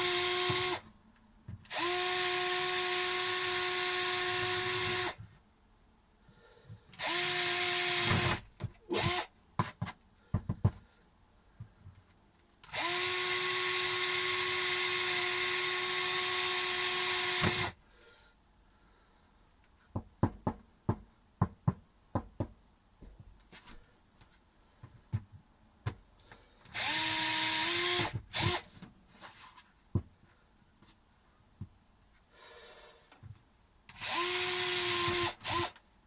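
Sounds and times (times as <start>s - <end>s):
electric drill boring into wood: 0.0s - 0.8s, 1.7s - 5.2s, 7.0s - 9.3s, 12.7s - 17.8s, 26.7s - 28.6s, 33.9s - 35.8s.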